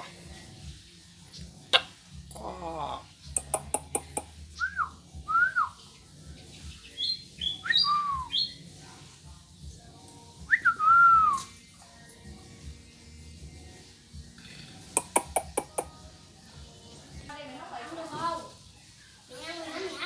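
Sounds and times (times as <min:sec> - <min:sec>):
sharp clicks: 0:03.4 - 0:04.3, 0:15.0 - 0:15.9
bird calling whistled notes: 0:03.4 - 0:05.8, 0:06.9 - 0:08.6, 0:10.5 - 0:11.5.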